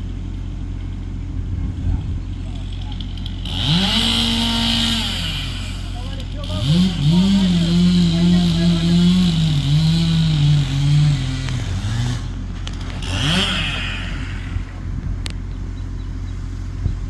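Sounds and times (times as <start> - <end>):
low hum: 0.0 - 17.0
chainsaw cutting at full throttle: 2.0 - 14.9.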